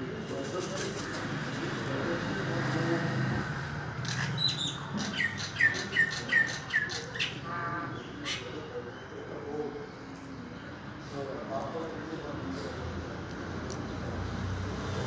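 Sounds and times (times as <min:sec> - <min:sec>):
bird chirping: 0:04.0 - 0:09.2.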